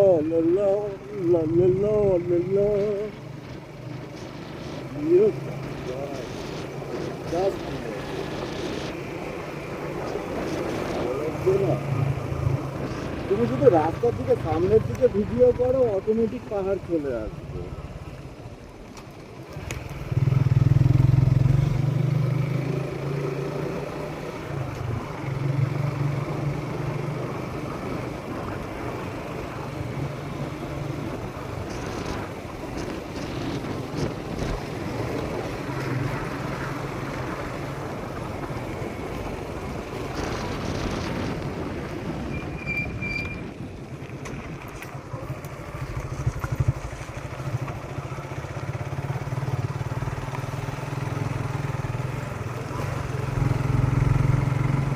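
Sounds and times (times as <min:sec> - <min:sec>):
road noise: 0:00.0 - 0:54.9
motorcycle engine running: 0:44.3 - 0:54.9.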